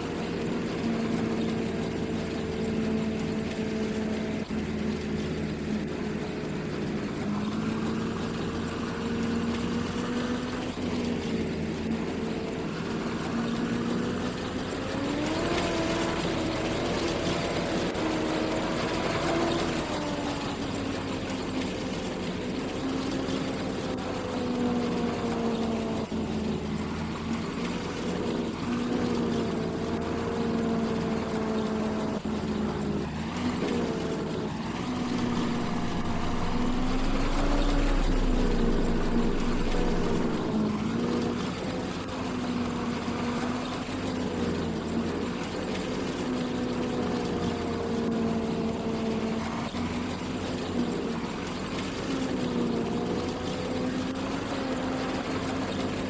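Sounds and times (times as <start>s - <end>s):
combine harvester engine running: 0.0s - 56.0s.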